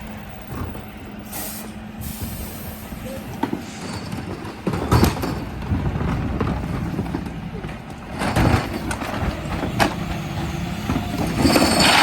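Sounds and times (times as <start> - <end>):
truck diesel engine humming: 0.0 - 12.0
air brake hisses: 1.3 - 3.8.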